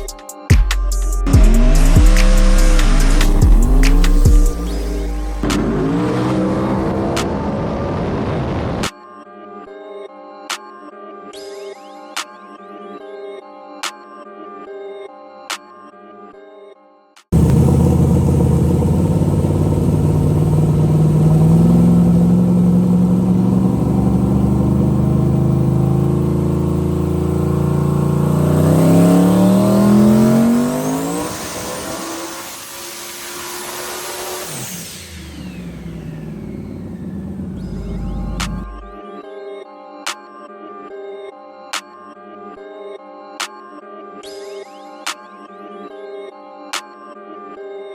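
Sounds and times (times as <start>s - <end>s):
engine revving on a dyno: 1.3s - 8.8s, 17.4s - 38.9s.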